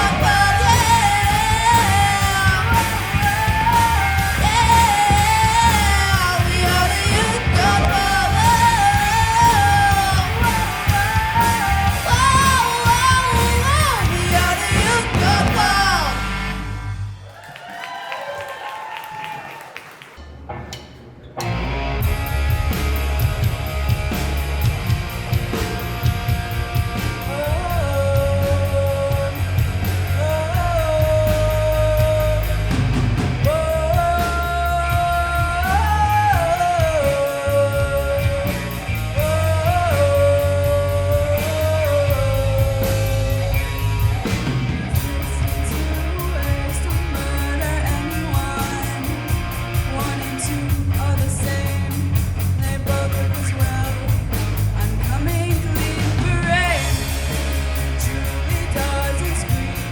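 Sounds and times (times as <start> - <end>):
electric guitar: 0.0 - 17.2, 21.4 - 59.9
bass guitar: 0.0 - 17.4, 20.5 - 59.9
drums: 0.0 - 59.9.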